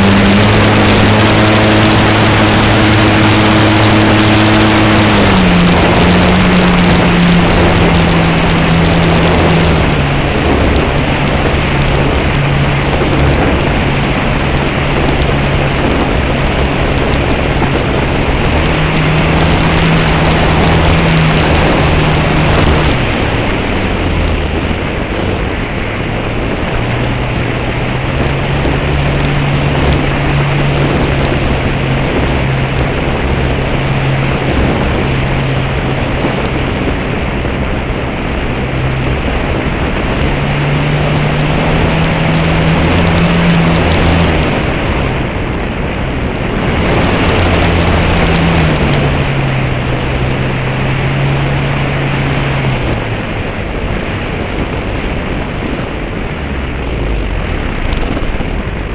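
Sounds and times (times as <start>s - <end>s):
electric motor and propeller drone: 0.0s - 16.3s
wind rush: 0.0s - 58.9s.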